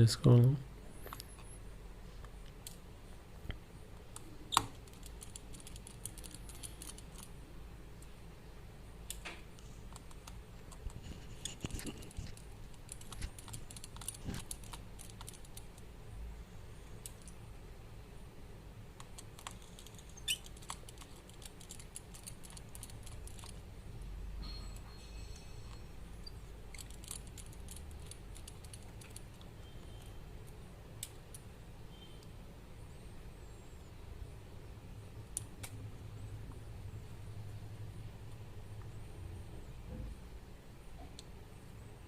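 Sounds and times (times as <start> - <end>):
small tools clicking on phone parts: 4.1 - 7.3, 9.9 - 15.9, 19.0 - 23.6, 24.8 - 31.5.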